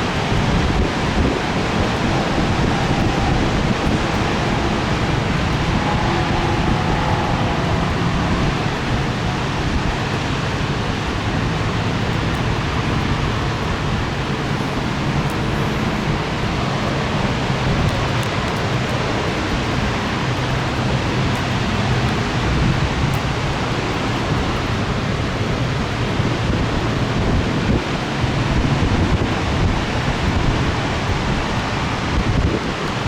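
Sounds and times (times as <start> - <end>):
low rumble: 0.0 - 20.7
gusty wind: 0.0 - 33.0
rain: 0.0 - 33.0.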